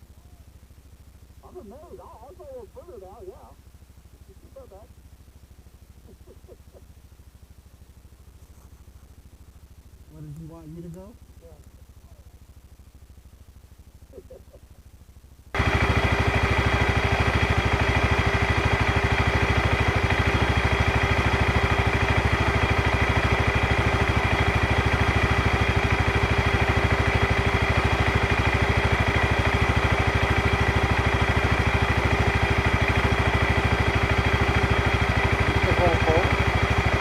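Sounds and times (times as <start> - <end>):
atv engine idling: 15.6 - 37.0.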